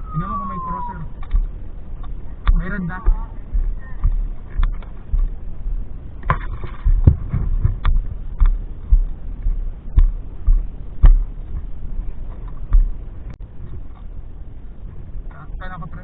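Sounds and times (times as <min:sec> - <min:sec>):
sharp clicks and knocks: 0:01.2 - 0:05.3, 0:06.2 - 0:14.1.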